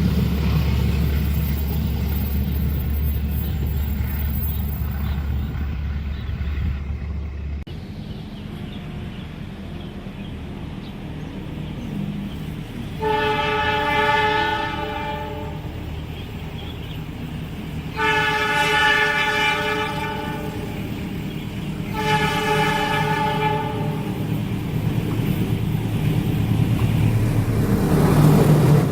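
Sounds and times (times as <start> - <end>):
train rumbling: 0.0 - 28.9
locomotive horn blasts: 13.0 - 15.9, 17.9 - 20.9, 21.9 - 24.2.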